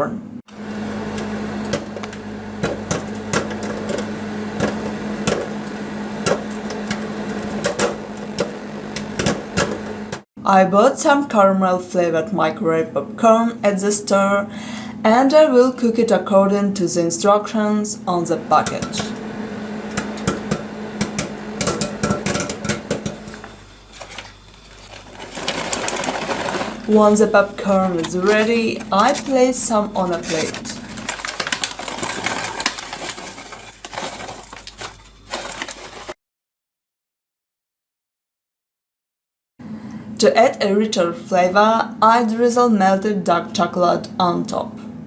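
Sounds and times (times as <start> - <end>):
microwave oven hum: 0.5 - 10.2, 11.5 - 36.1
popcorn popping: 0.8 - 10.2, 18.1 - 36.2.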